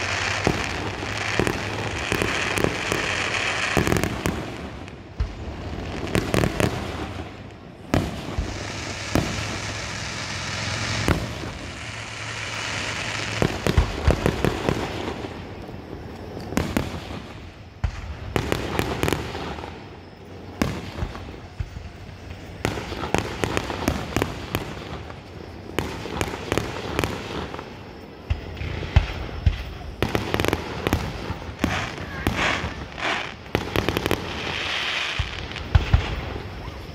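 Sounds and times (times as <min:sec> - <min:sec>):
fireworks bursting: 0:00.0 - 0:36.9.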